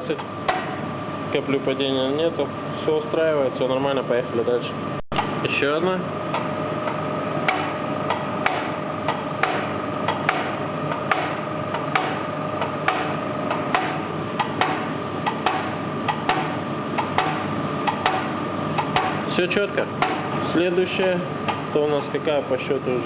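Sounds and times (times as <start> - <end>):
steady hum: 0.0 - 23.0
diesel injector clicking: 6.3 - 19.4, 20.0 - 20.4, 21.4 - 21.7.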